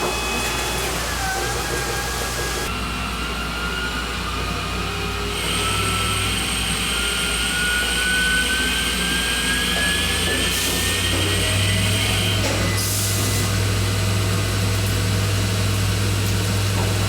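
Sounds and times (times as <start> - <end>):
lathe spindle whine rising: 0.0 - 12.7.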